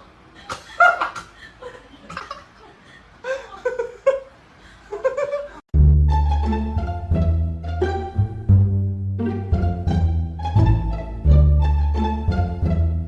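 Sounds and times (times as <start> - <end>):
people laughing and giggling: 0.4 - 5.6
plucked strings and bass music: 5.7 - 13.0.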